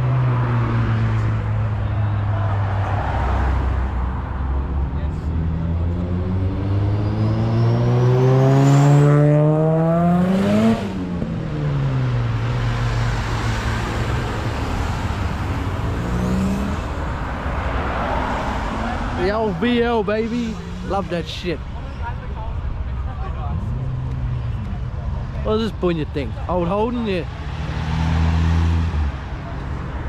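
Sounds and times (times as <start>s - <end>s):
car engine accelerating past: 5.4s - 11.2s.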